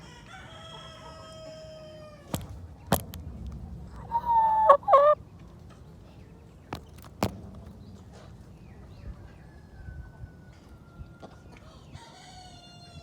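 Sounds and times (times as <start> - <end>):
rooster crowing: 0.0 - 2.3, 12.0 - 13.0
wavering bird call: 4.0 - 5.2.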